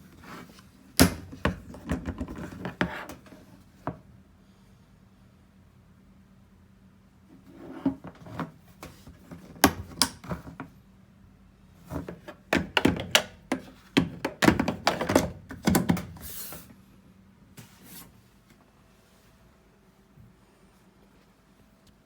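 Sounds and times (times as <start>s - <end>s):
knocks clicks and thunks: 12.4s - 16.1s.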